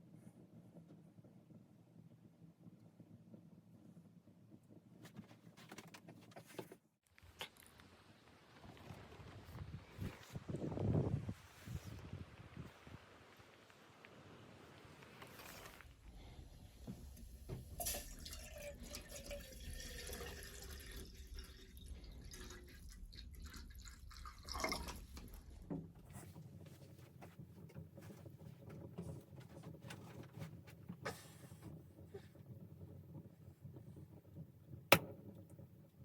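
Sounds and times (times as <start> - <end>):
liquid dripping and splashing: 17.5 - 26.0.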